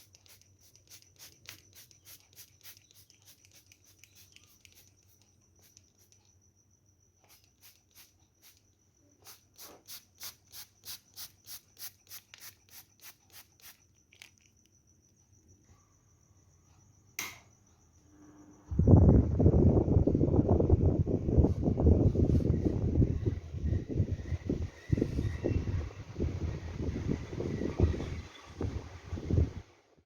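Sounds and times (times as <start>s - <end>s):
faint high-pitched tone: 15.3s - 19.3s.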